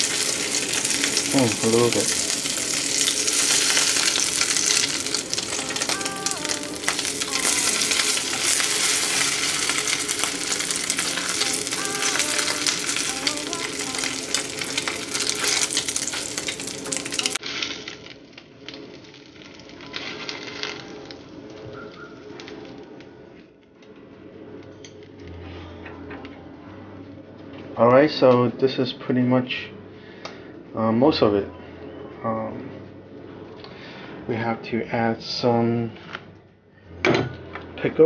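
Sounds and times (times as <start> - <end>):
food frying in hot oil: 0.0 - 21.2.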